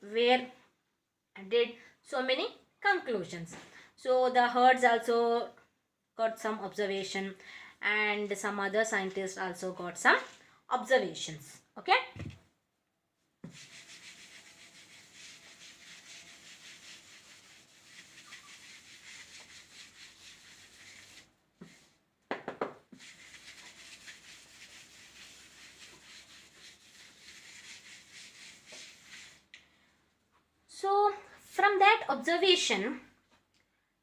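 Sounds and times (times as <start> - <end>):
pen scratching on paper: 13.4 - 21.8, 23.0 - 29.4.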